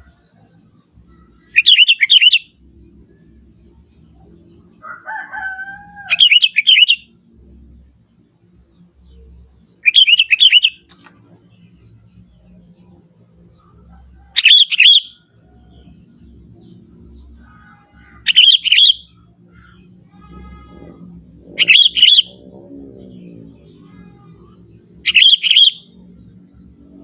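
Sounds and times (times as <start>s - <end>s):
bird warbling: 4.8s - 7.1s, 9.8s - 11.4s, 17.3s - 25.9s.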